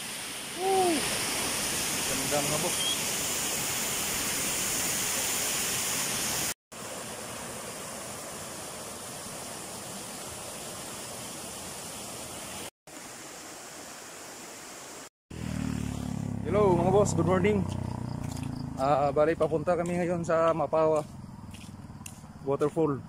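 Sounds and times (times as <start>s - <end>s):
waterfall rushing: 0.0s - 15.1s.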